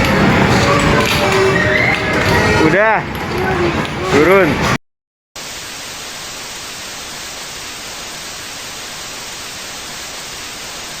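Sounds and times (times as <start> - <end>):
static white noise: 5.4 - 11.0.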